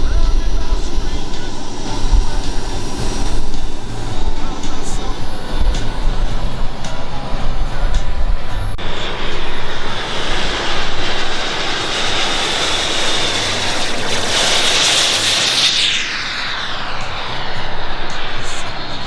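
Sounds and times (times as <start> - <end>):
model jet turbines flying past: 0.0 - 19.0.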